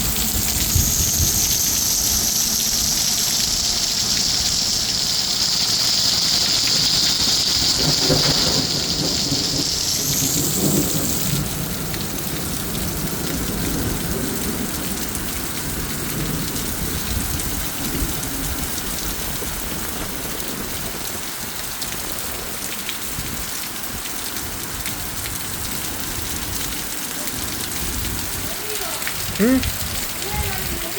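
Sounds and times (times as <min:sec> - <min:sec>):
rushing hiss rising in pitch: 0:00.0 - 0:12.1
thunder rumbling: 0:00.0 - 0:22.5, 0:25.0 - 0:30.9
heavy rain pouring: 0:00.0 - 0:30.9.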